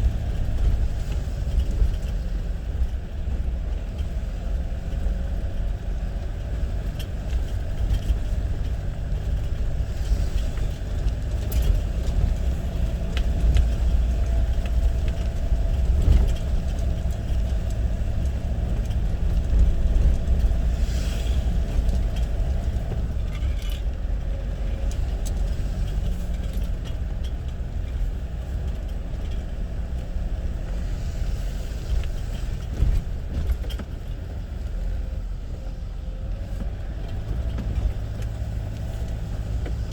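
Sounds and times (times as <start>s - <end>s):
road noise: 0.0s - 39.9s
vehicle engine rumble: 0.0s - 39.9s.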